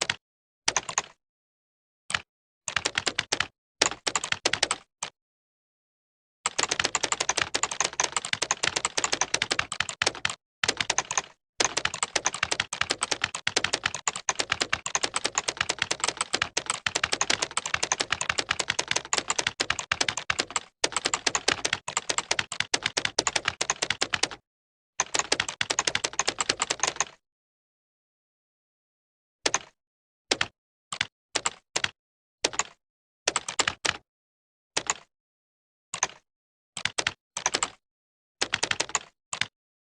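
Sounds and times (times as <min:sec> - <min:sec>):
fast keyboard typing: 0:00.0 - 0:01.2, 0:02.1 - 0:05.2, 0:06.5 - 0:24.4, 0:25.0 - 0:27.2, 0:29.5 - 0:34.0, 0:34.8 - 0:35.1, 0:36.0 - 0:36.2, 0:36.8 - 0:37.8, 0:38.4 - 0:39.6.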